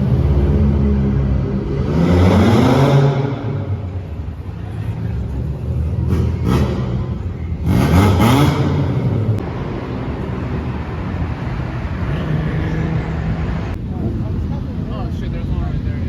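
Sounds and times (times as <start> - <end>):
car engine revving: 0.0 - 4.4, 5.8 - 13.8.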